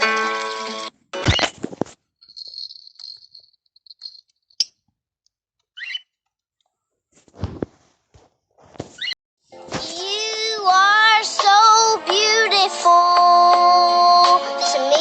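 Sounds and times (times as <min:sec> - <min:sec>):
parrot chirps: 0:05.8 - 0:06.2.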